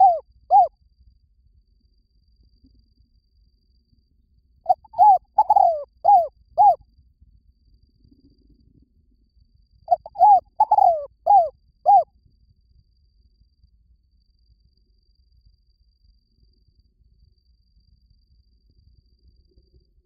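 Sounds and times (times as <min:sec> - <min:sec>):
dove cooing: 0:00.0 - 0:00.7, 0:04.7 - 0:06.8, 0:09.9 - 0:12.0.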